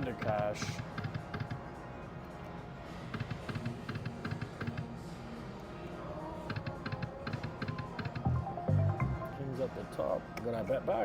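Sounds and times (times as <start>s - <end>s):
rapid electronic clicks: 0.2s - 1.6s, 3.2s - 4.9s, 6.5s - 8.4s
casino hum: 6.6s - 9.6s.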